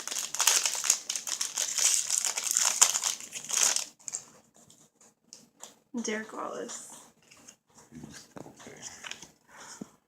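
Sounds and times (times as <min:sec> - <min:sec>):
wrapper crinkling: 0:00.0 - 0:04.2.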